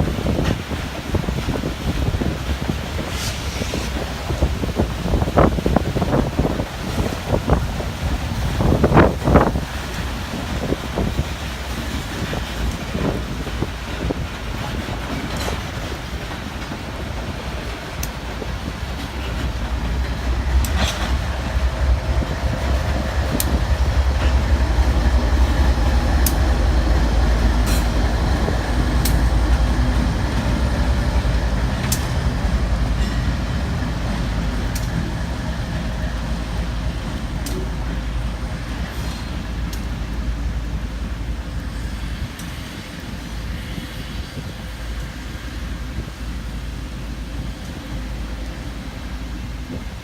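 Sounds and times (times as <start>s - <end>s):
train cars rumbling past: 0.0s - 50.0s
wheels clicking over rail joints: 0.0s - 50.0s
wind buffeting microphone: 0.0s - 50.0s.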